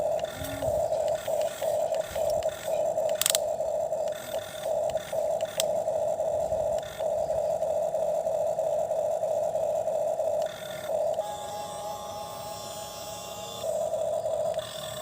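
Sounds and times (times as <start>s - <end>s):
sharp clicks: 0.0s - 5.8s, 6.6s - 7.2s, 10.4s - 11.2s
toy electric motor whirring: 0.0s - 7.7s, 9.4s - 15.0s.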